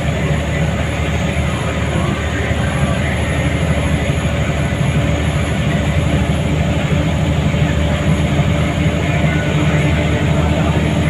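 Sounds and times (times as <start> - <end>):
bus diesel engine running: 0.0 - 11.0
road and tyre noise: 0.0 - 11.0.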